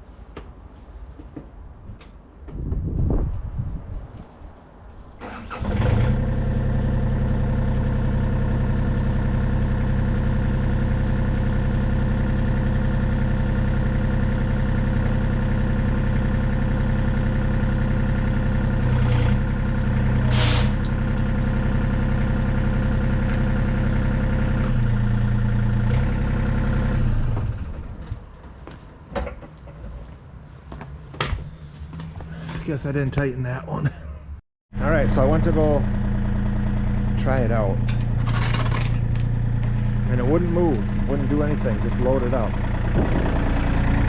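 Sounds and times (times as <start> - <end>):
diesel engine running: 5.2 - 28.6, 31.4 - 44.0
short hiss: 20.3 - 20.8.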